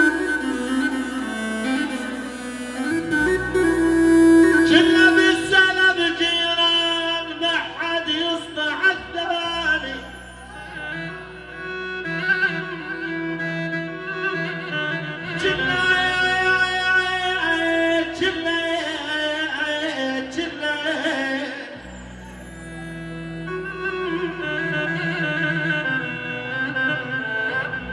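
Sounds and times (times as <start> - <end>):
low drone: 0.0 - 6.0
wavering held melody: 0.0 - 6.6.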